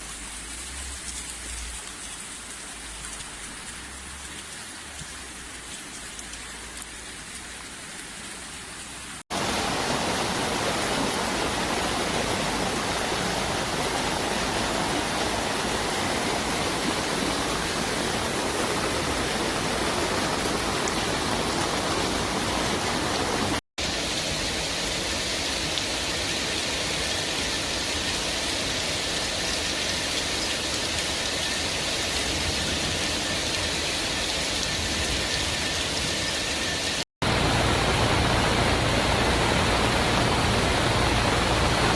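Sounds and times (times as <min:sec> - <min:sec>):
heavy rain: 0:00.0 - 0:41.9
running water: 0:00.0 - 0:41.9.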